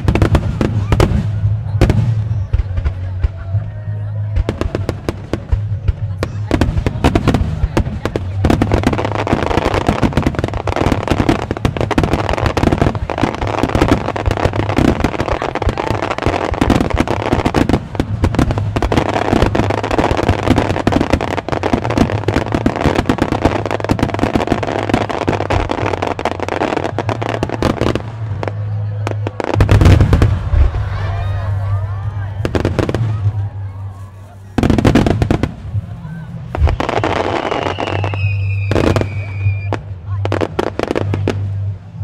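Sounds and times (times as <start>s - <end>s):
fireworks launching and bursting: 0.0s - 42.0s.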